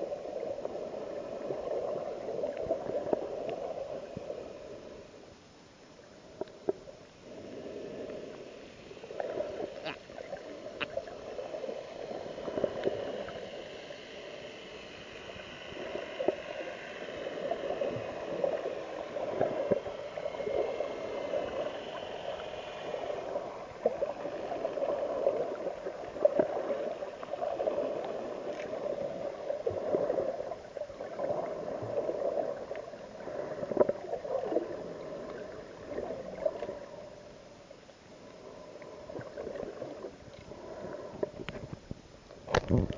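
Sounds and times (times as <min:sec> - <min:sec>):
water gurgling and sloshing: 0:00.0 - 0:42.9.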